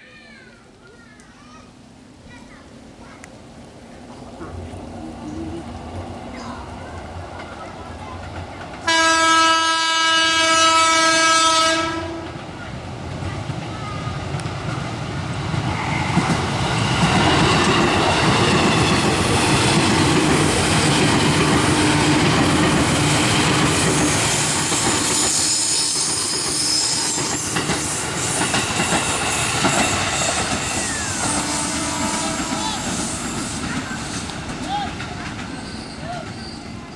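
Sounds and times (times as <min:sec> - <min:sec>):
train wheels clattering: 0:12.2 - 0:36.9
train wheel squeal: 0:17.8 - 0:36.9.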